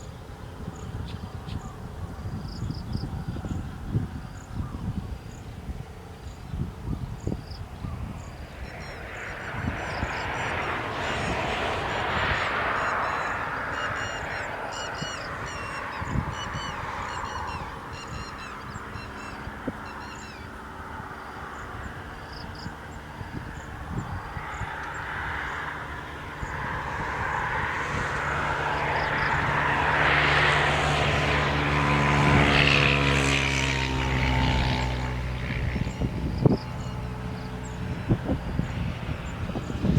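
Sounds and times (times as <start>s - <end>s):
wind thumps on microphone: 34.2s - 39.9s.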